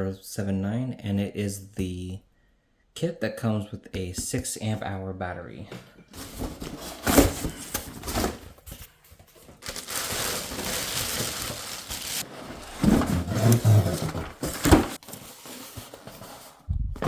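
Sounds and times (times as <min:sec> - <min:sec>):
packaging crinkling and rustling: 0:06.2 - 0:16.6.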